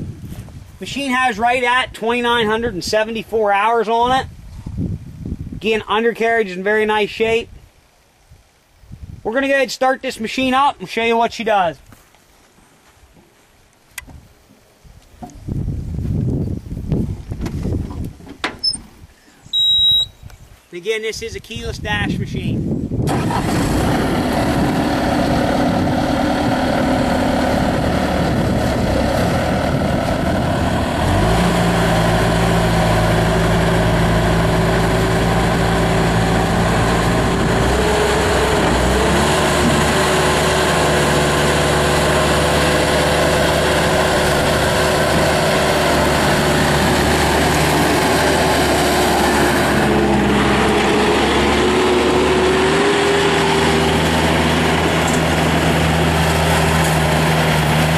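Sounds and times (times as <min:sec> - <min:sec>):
diesel engine running: 0:23.1 - 0:57.9.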